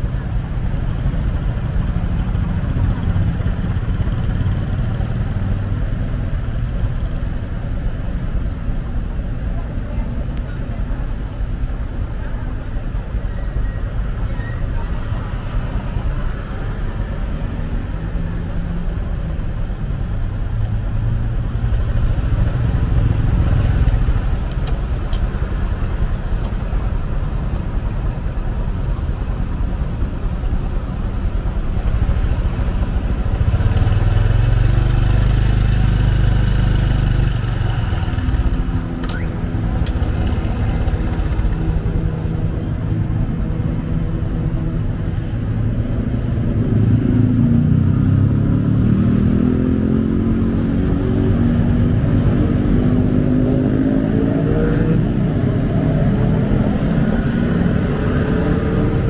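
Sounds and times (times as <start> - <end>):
motorcycle engine rumbling: 0.0 - 59.0
road noise: 0.0 - 59.0.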